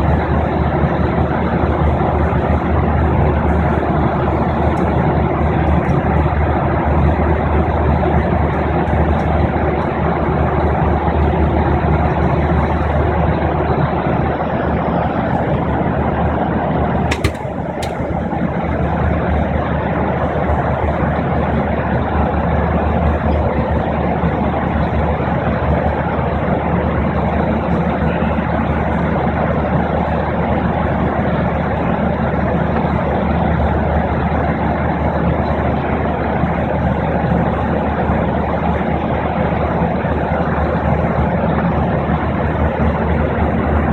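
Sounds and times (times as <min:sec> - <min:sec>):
brief click: 0:17.1 - 0:18.0.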